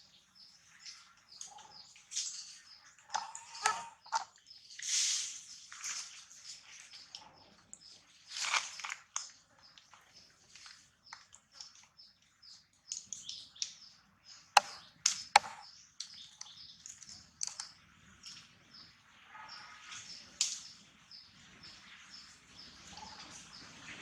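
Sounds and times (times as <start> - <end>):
small birds chirping: 0.0 - 24.0
sharp cracks: 14.6 - 15.6.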